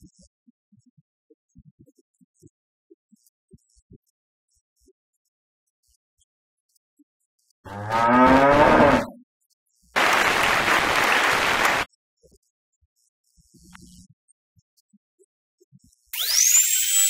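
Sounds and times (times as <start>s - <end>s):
applause-like noise: 10.0s - 11.9s.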